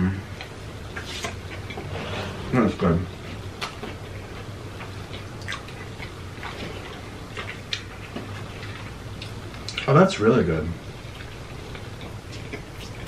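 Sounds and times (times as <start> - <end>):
people chewing: 0.4 - 2.0, 3.2 - 9.9, 11.0 - 13.0.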